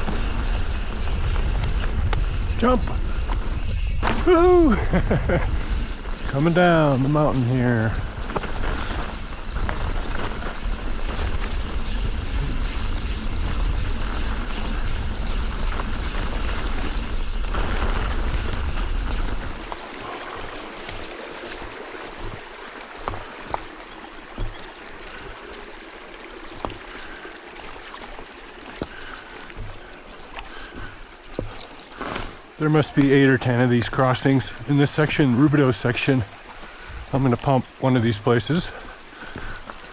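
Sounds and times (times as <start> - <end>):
wind rumbling on microphone: 0.0 - 25.3
bike tyres on rough dirt: 0.0 - 39.9
creek water rushing: 0.0 - 39.9.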